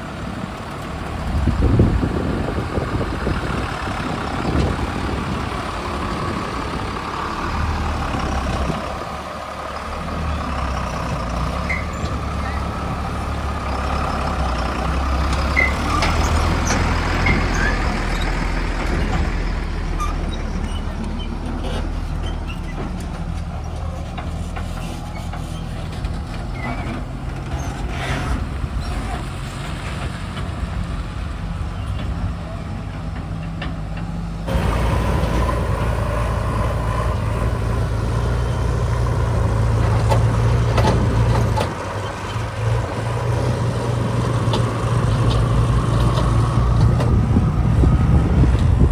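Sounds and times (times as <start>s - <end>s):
heavy diesel engines running: 0.0s - 48.9s.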